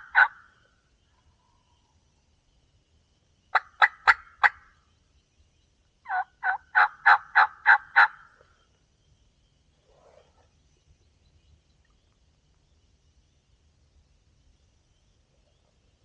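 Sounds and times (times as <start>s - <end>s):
turkey yelping: 0.0s - 0.4s, 3.6s - 4.6s, 6.1s - 8.2s.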